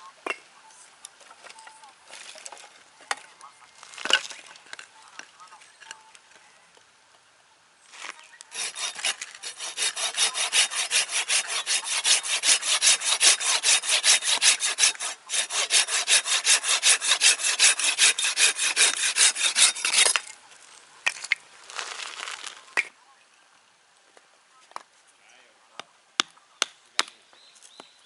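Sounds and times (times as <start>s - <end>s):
hand saw cutting wood: 8.5s - 20.3s.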